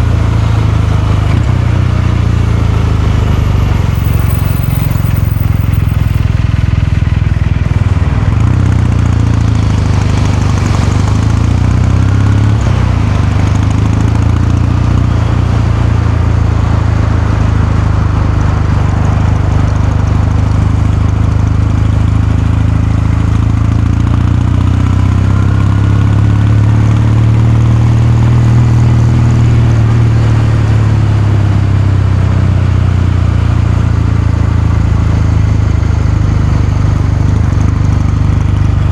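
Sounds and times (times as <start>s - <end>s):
motorcycle engine and exhaust running: 0.0s - 38.9s.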